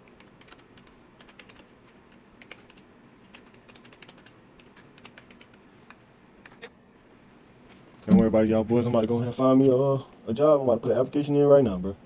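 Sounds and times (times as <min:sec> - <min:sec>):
typing on computer keyboard: 0:00.0 - 0:05.6.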